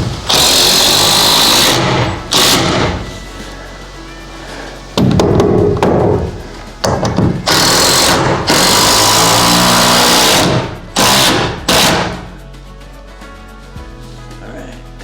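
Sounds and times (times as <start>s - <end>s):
power drill drilling into wood: 0.3s - 3.0s, 7.4s - 12.3s.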